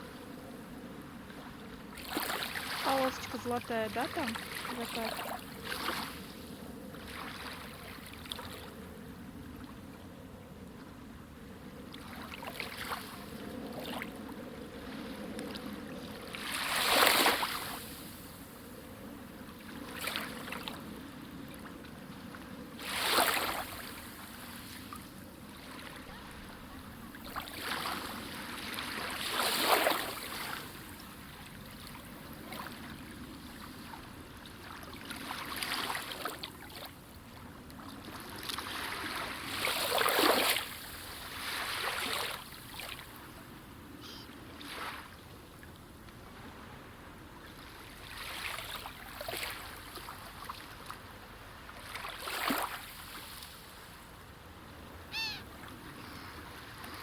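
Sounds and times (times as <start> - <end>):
small waves washing on shore: 0.0 - 10.0, 10.8 - 57.0.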